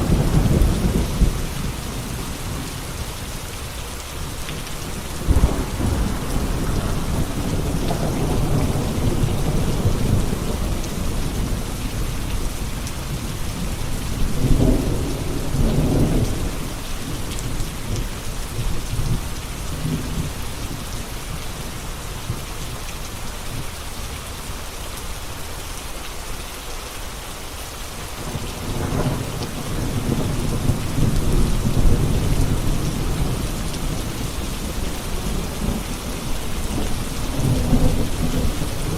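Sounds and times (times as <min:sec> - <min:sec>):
rolling thunder: 0:00.0 - 0:02.8, 0:04.6 - 0:20.8, 0:28.2 - 0:38.9
heavy rain falling: 0:00.0 - 0:38.9.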